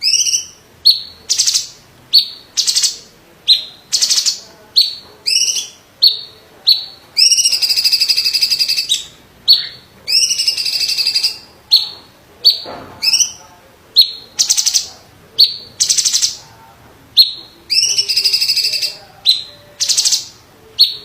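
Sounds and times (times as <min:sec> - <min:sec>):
bird singing sharp whistled notes: 0:00.0 - 0:13.4
buzzy rattling bird trills: 0:00.0 - 0:13.4, 0:14.0 - 0:16.4, 0:17.2 - 0:21.0.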